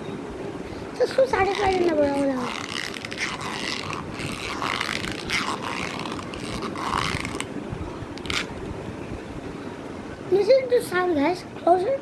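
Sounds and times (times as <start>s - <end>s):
phone case crunching: 1.4s - 7.5s.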